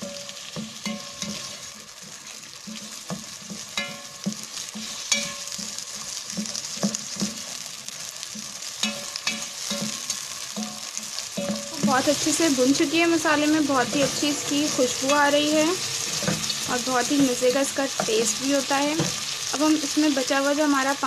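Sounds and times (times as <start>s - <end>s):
spatula knocking pot: 0.0s - 1.7s, 2.7s - 7.6s, 8.3s - 15.4s
food sizzling in a pot: 0.0s - 21.0s.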